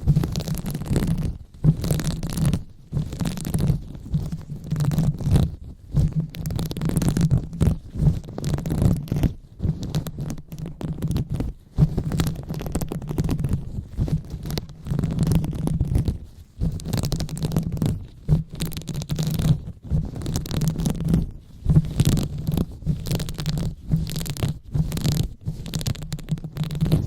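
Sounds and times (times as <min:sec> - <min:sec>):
hands rubbing microphone: 0:00.0 - 0:27.0.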